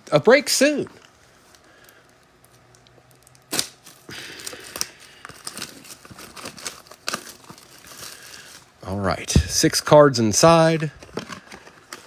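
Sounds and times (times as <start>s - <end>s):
wrapper crinkling and tearing: 1.4s - 8.8s
card pack wrapper snapping: 2.7s - 8.2s.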